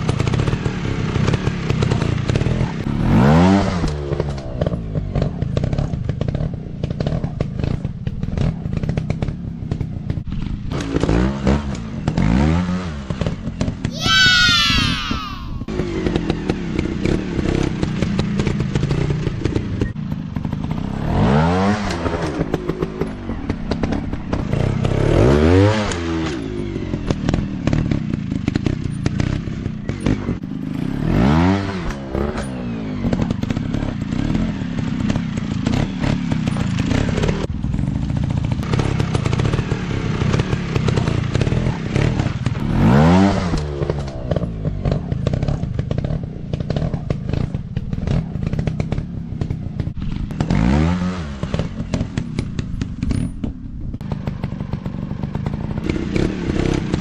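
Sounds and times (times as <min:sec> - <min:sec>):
dirt bike engines revving: 0:13.9 - 0:53.3.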